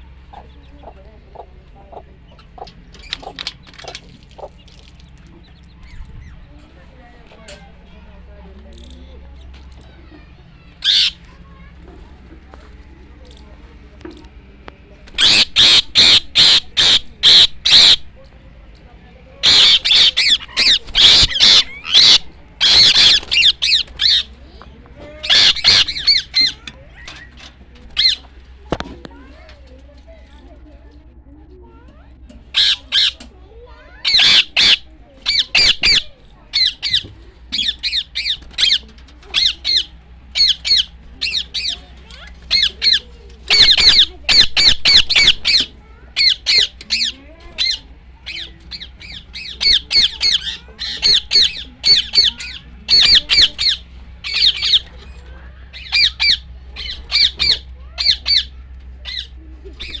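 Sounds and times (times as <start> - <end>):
bird squawking: 10.1 - 11.7, 15.1 - 18.3, 19.3 - 29.5, 32.4 - 60.0.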